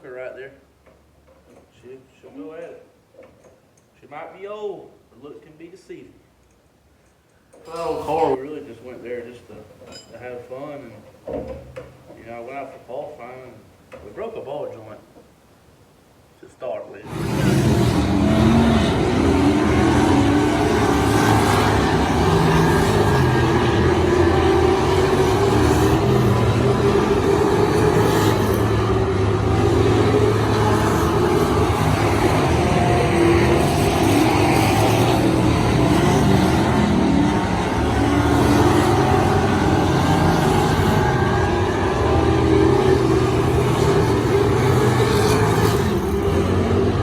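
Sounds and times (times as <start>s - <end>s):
race car engine running hard: 17.1s - 47.0s.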